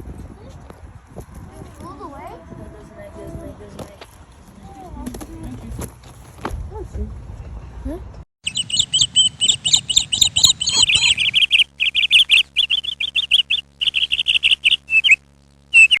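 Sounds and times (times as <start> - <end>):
small bird chirping rapidly: 8.4 - 16.0.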